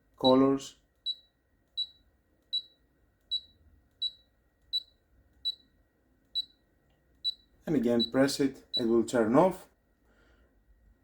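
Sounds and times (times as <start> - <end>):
short high beeps: 2.6 - 5.6.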